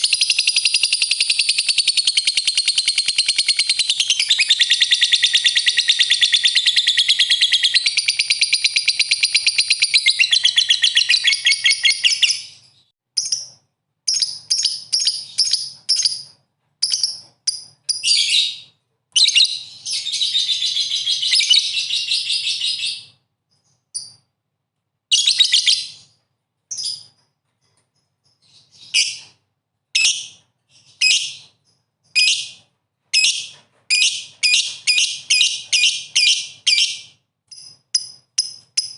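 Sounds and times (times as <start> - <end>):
lovebird chattering trill: 0.0 - 12.6.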